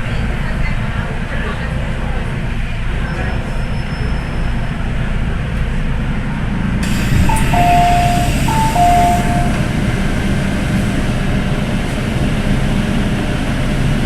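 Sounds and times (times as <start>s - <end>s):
train car low rumble: 0.0s - 14.0s
hiss of air or door: 6.8s - 9.6s
two-note descending chime: 7.2s - 9.6s.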